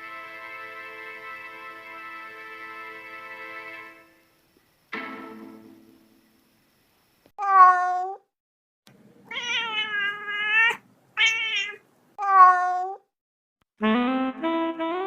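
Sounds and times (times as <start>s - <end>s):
cat meowing: 7.4s - 8.2s, 9.3s - 13.1s.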